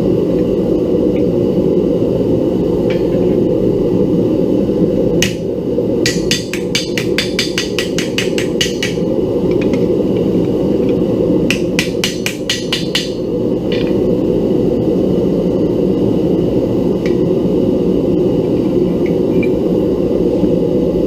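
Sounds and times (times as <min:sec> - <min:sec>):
forge burner roar: 0:00.0 - 0:21.0
hammer striking metal: 0:06.0 - 0:09.0, 0:11.5 - 0:13.2.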